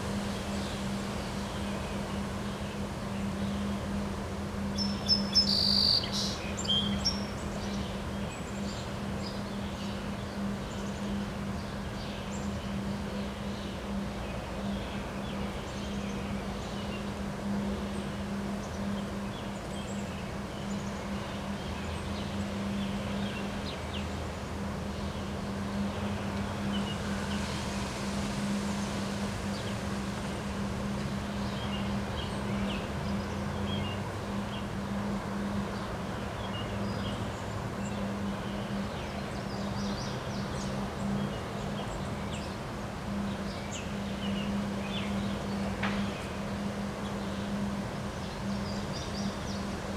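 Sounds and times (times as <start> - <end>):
wind blowing: 25.6 - 33.3.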